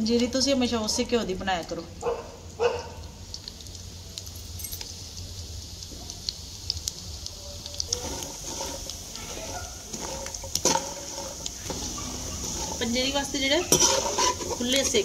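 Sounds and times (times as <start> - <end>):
nuts sizzling in oil: 0.0 - 15.0
spatula clinking and scraping: 7.9 - 15.0.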